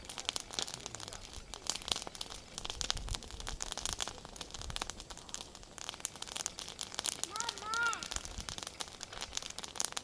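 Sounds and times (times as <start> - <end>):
bonfire crackling: 0.0 - 10.0.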